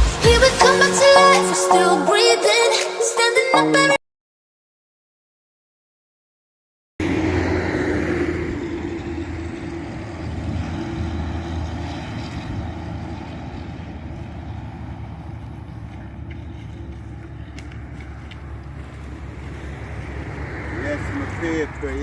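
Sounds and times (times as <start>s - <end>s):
motor vehicle rumble: 7.0s - 22.0s.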